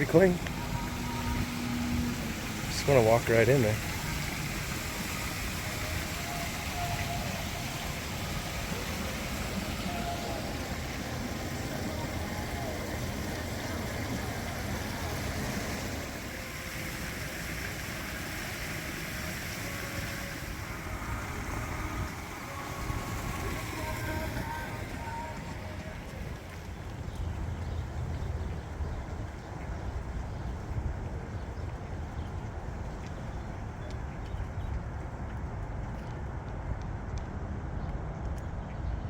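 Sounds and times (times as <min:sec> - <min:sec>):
wind buffeting microphone: 0:20.6 - 0:39.0.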